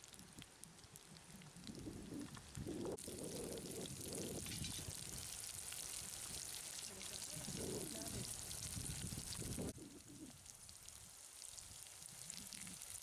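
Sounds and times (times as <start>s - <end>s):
burning twigs crackling: 0.0s - 13.0s
onions sizzling in oil: 3.0s - 13.0s.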